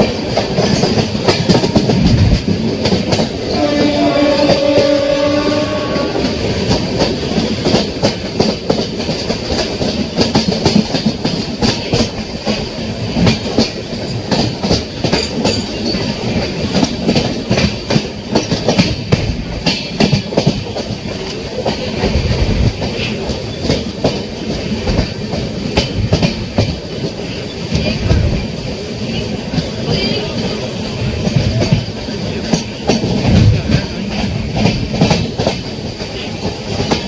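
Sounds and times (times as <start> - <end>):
train rumbling: 0.0 - 37.0.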